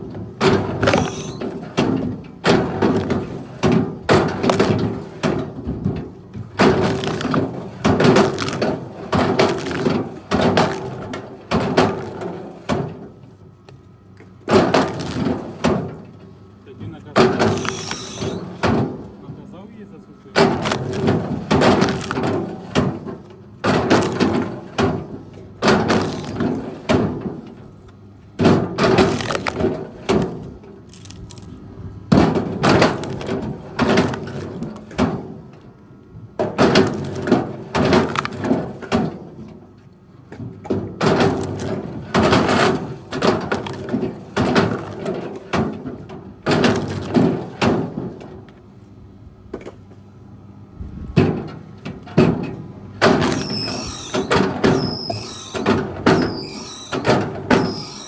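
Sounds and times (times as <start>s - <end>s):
loud cracking and crashing: 6.5s - 12.3s, 20.4s - 24.9s, 28.6s - 31.5s.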